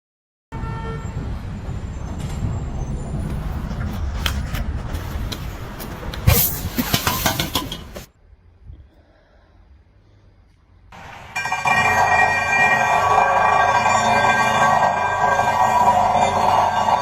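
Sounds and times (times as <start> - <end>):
heavy engine rumbling: 0.7 - 8.1, 9.6 - 17.0
metallic clanks and knocks: 5.8 - 8.1.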